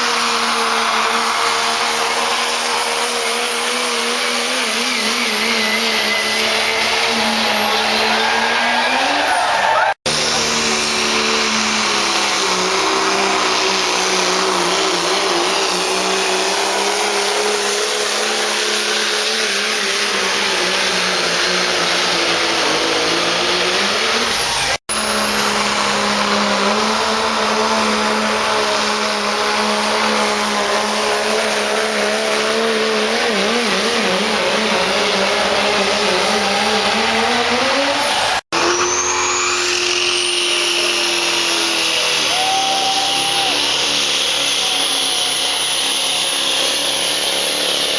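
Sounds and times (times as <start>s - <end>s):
pickup truck engine at high rpm: 0.0s - 47.9s
high turbo whistle: 37.8s - 47.0s.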